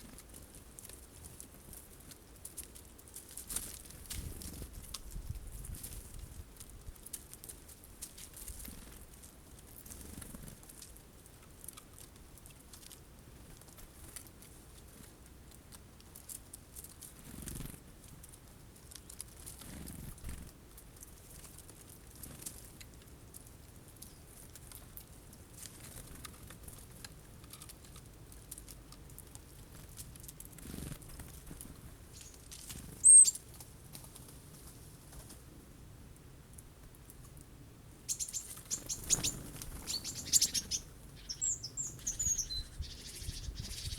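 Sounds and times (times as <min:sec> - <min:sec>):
birds pecking at seeds: 0:00.0 - 0:43.9.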